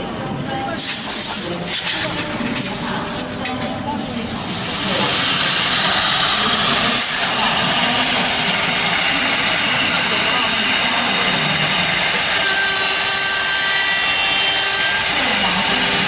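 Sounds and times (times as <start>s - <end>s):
wood lathe cutting: 4.7s - 16.0s.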